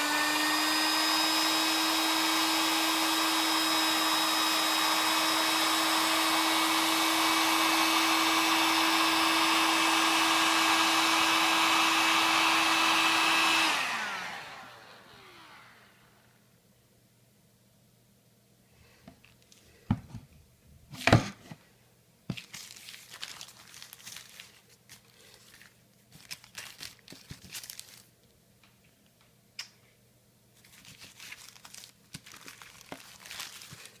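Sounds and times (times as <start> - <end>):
plastic film crumpling: 22.3 - 28.2, 30.6 - 34.0
sharp plastic crackle: 22.3 - 28.2, 30.6 - 34.0.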